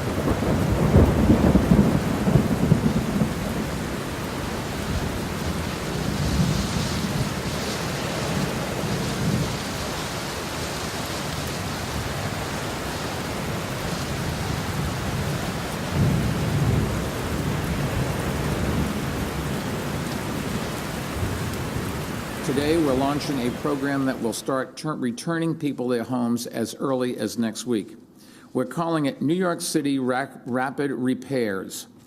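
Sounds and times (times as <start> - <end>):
heavy rain: 0.0 - 24.5
thunder rumbling: 0.0 - 24.5.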